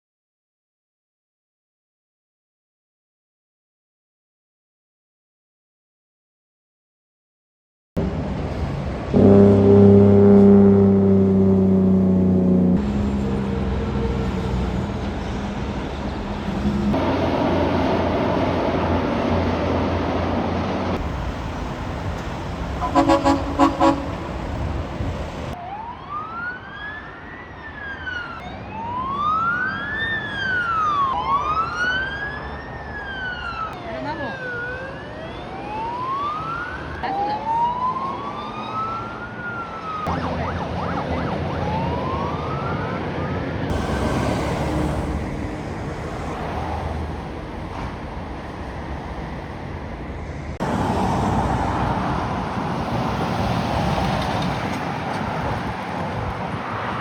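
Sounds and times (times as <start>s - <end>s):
truck engine noise: 8.0s - 25.6s, 35.8s - 57.0s
emergency siren wailing: 9.1s - 19.5s, 21.0s - 57.0s
short horn toots: 9.2s - 10.9s, 22.8s - 24.3s
falling pitched drone: 9.2s - 25.6s.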